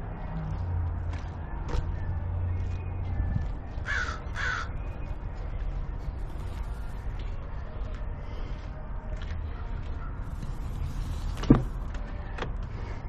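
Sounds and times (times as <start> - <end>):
crow cawing: 3.8 - 4.7.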